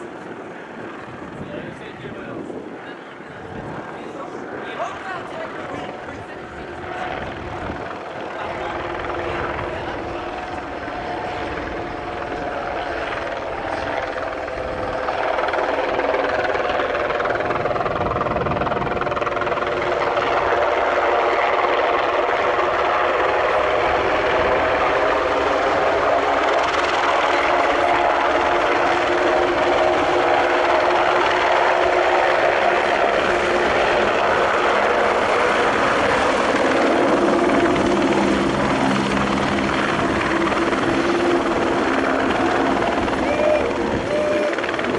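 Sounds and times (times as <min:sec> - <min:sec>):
aircraft engine running: 0:00.0 - 0:44.9.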